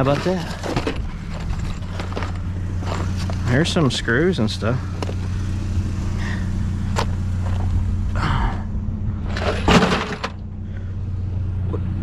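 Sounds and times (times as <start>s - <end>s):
rattling clatter: 0.0s - 5.5s, 6.3s - 7.9s, 9.1s - 10.5s
vehicle engine idling: 0.0s - 12.0s.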